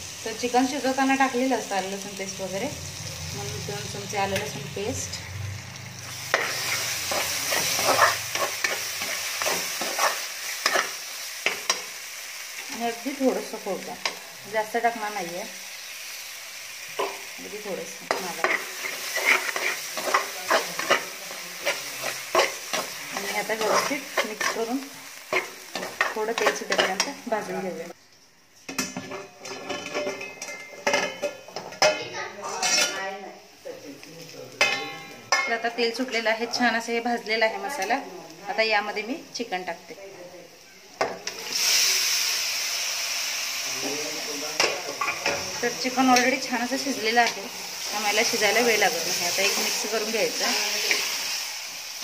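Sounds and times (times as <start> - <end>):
paste sizzling in hot oil: 0.0 - 28.0, 31.7 - 52.0
spoon scraping pan: 5.9 - 11.9, 17.9 - 27.5, 28.7 - 33.0
spoon clinking against a pan: 28.8 - 33.0.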